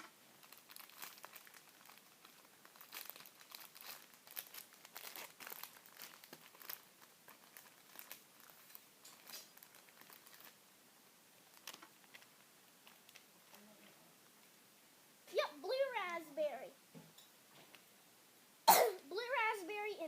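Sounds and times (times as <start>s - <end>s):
drink packets crinkling: 0.4s - 10.6s, 11.5s - 13.6s.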